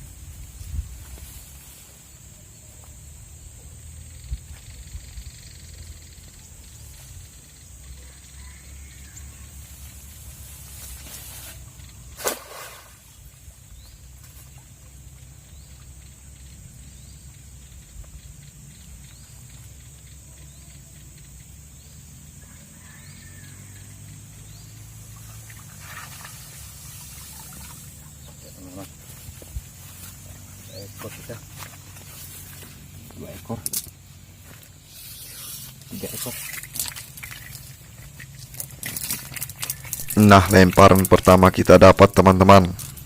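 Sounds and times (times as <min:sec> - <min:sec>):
wind rumble on microphone: 0:00.0 - 0:01.5
high-pitched insect drone: 0:14.3 - 0:43.0.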